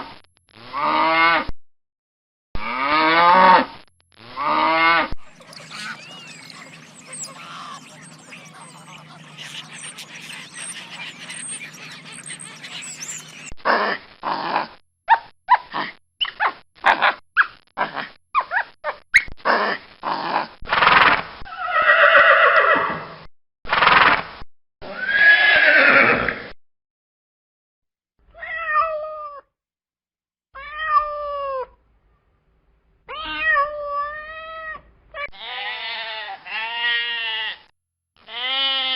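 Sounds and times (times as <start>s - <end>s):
horse neighing: 24.9s - 26.4s.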